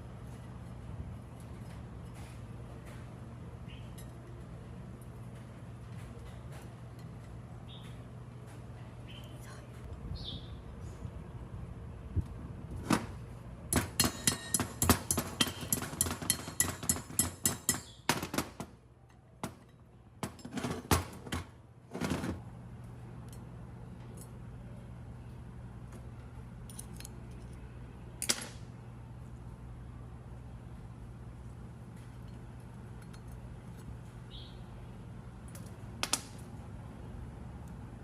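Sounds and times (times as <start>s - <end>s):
steady low hum: 0.0s - 38.0s
metal knocks and clinks: 13.7s - 18.0s.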